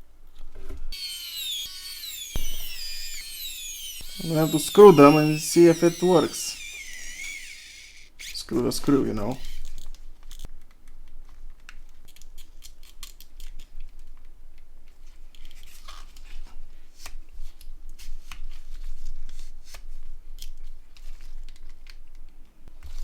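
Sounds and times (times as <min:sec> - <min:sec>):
screwdriver clicking and scraping: 0:01.0 - 0:08.4.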